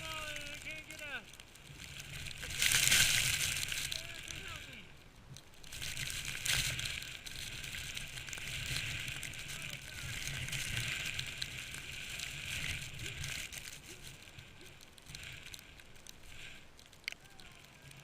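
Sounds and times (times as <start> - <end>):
hiss of wind-blown snow: 0.0 - 4.9.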